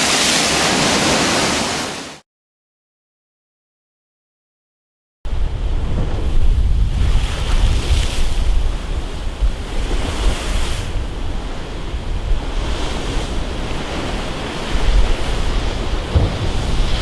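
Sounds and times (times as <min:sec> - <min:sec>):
sea waves breaking: 0:00.0 - 0:02.2, 0:05.3 - 0:17.0
wind buffeting microphone: 0:05.3 - 0:17.0.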